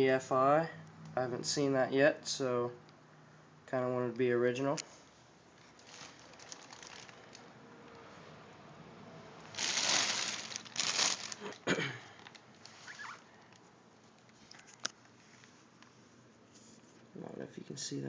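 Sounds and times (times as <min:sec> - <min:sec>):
packaging rustling: 0:05.6 - 0:07.5, 0:09.5 - 0:14.9.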